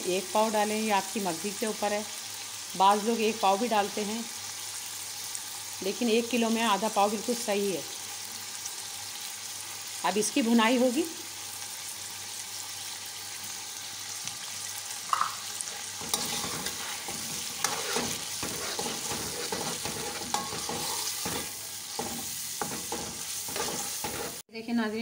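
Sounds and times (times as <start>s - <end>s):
meat sizzling in a pot: 0.0s - 24.5s
metal spoon scraping a pot: 15.7s - 24.4s.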